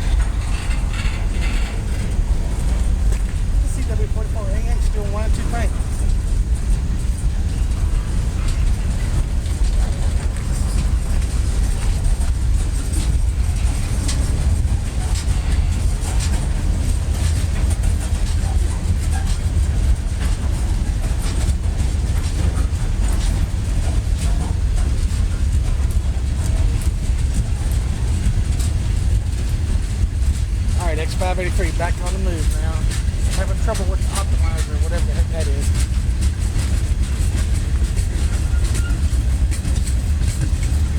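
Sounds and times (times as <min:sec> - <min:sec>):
freight train rumbling past: 0:00.0 - 0:40.9
wheel clicks on rail joints: 0:00.0 - 0:40.9.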